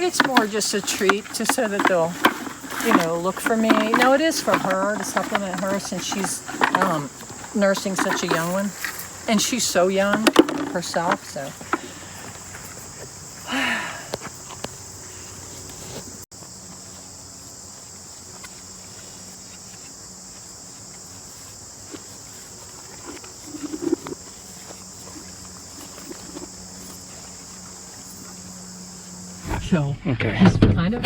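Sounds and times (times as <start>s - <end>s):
knocks and rustles: 0.0s - 13.4s
crickets chirping: 0.0s - 30.1s.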